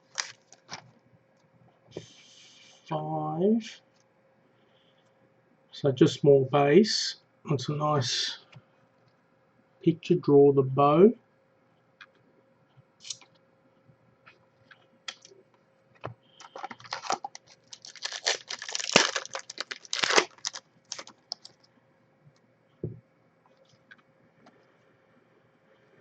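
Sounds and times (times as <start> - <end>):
card pack crinkling: 0.0 - 0.9, 15.1 - 15.3, 16.4 - 21.7.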